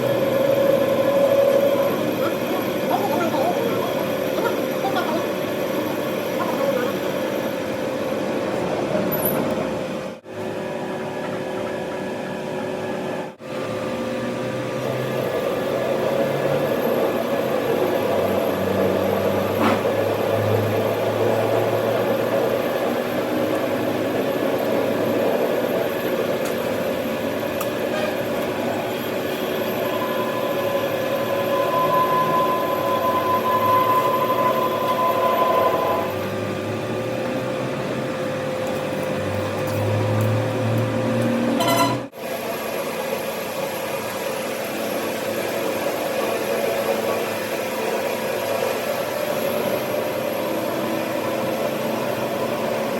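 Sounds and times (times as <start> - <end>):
steady machine hum: 0.0 - 52.9
high steady whine: 14.8 - 52.9.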